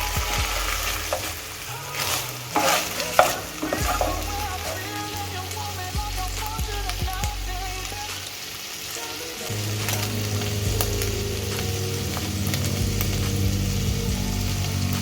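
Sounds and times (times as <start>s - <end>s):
spoon stirring: 0.0s - 5.2s
utensil clicking on pan: 0.0s - 5.2s
faint background music: 0.0s - 15.0s
meat sizzling in a pan: 0.0s - 15.0s.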